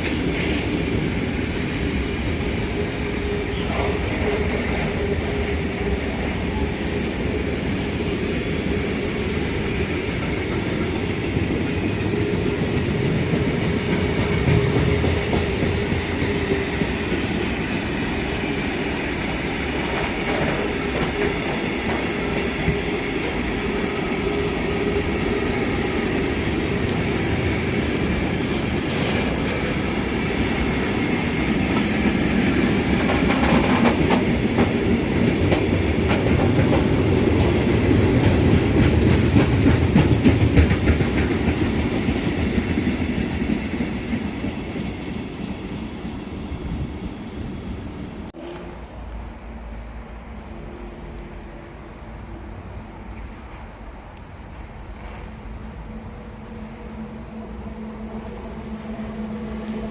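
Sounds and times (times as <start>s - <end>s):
train wheels clattering: 0.0s - 6.4s, 8.6s - 46.0s.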